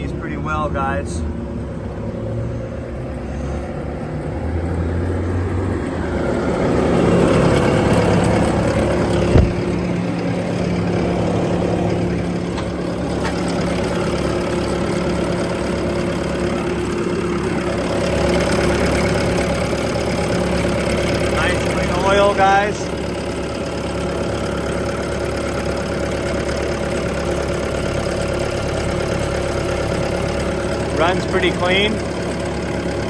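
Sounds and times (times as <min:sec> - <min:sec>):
diesel engine idling: 0:00.0 - 0:33.0
sharp knock: 0:09.3 - 0:09.8.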